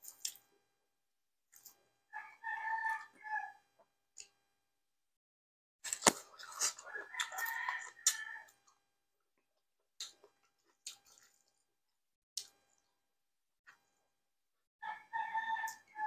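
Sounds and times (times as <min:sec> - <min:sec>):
wet chewing: 0:05.9 - 0:08.6, 0:10.0 - 0:11.7.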